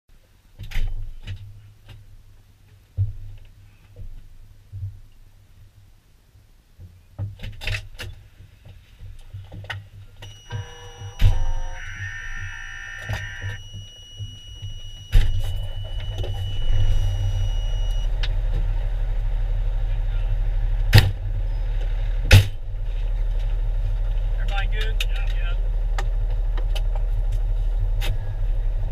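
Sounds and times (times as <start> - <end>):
diesel engine rumbling: 10.1 - 28.9
electronic beeping tones: 10.2 - 18.1.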